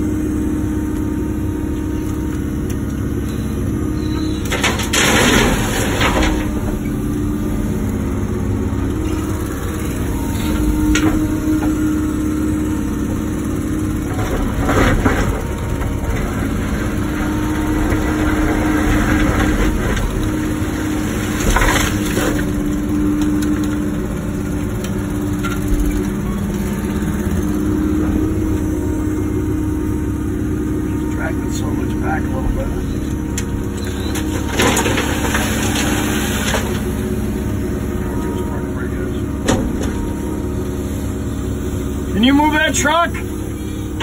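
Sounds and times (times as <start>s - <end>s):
excavator diesel engine running: 0.0s - 44.0s
bucket scraping dirt and rock: 33.8s - 36.9s.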